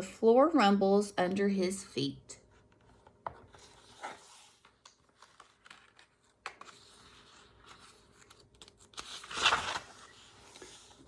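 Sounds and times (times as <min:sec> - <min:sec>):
book pages rustling: 0:02.4 - 0:11.0.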